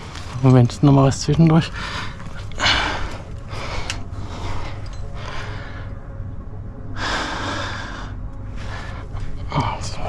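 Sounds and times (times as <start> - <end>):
person breathing hard: 1.7 - 6.2, 7.0 - 9.4.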